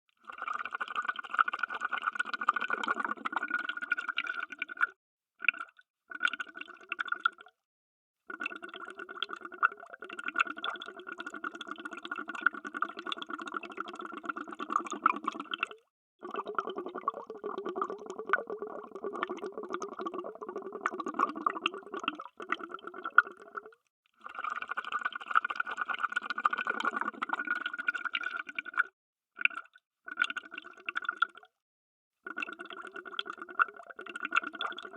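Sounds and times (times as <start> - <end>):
underwater bubbling: 2.0 - 7.3, 8.4 - 23.8, 24.5 - 28.8.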